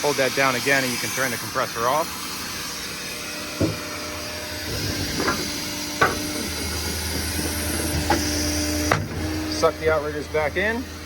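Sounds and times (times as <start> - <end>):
hydraulic system hum: 0.0 - 11.0
deeper hum: 2.0 - 11.0
sharp clicks or knocks: 4.7 - 9.3.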